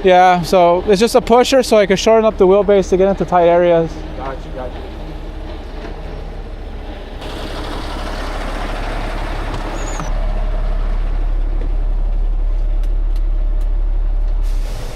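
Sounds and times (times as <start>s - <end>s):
diesel truck engine running: 0.0s - 14.9s
broad hiss: 14.4s - 14.9s.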